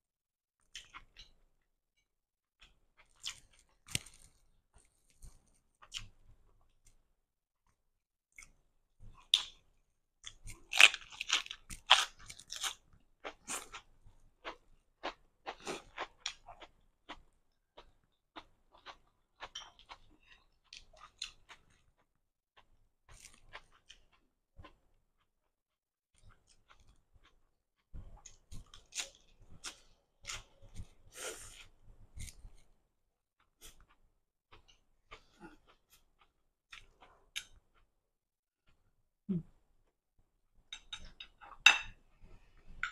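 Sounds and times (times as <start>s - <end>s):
crunching and chewing lettuce: 3.0s - 6.1s, 10.3s - 13.9s, 23.1s - 24.8s
crisp crunching of lettuce: 3.1s - 4.4s.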